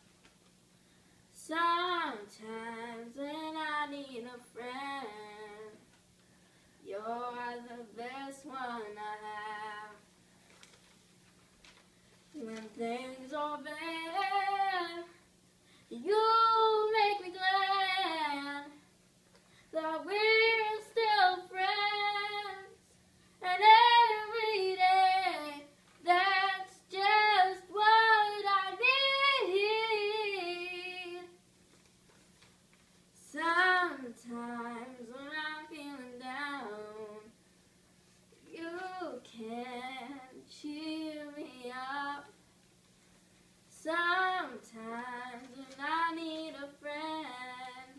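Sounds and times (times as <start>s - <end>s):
girl singing: 1.3s - 5.9s, 6.8s - 10.1s, 12.3s - 15.3s, 15.9s - 18.9s, 19.7s - 31.4s, 33.2s - 37.4s, 38.4s - 42.4s, 43.7s - 47.9s.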